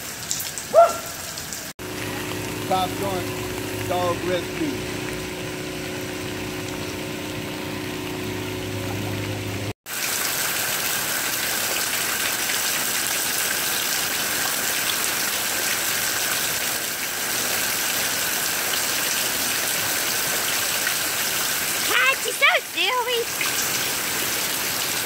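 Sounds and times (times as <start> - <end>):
engine running: 1.8 - 9.8.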